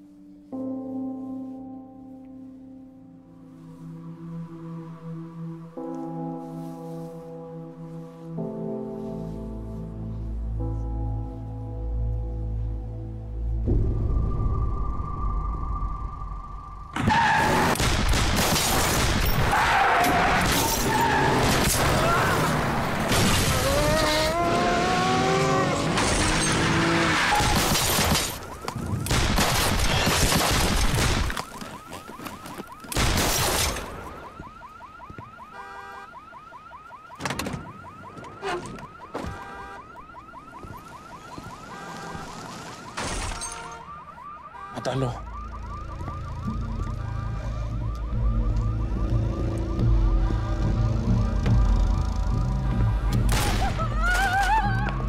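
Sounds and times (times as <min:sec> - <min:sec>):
car alarm sounding: 0:33.6 - 0:53.0.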